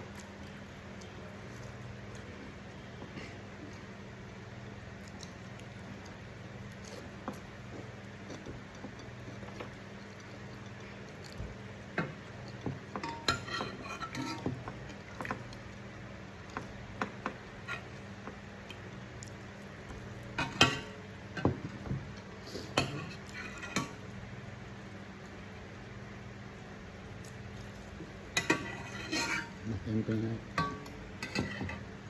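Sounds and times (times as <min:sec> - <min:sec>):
cutlery clinking on plates: 0:12.9 - 0:14.5, 0:20.4 - 0:21.6, 0:30.6 - 0:31.8.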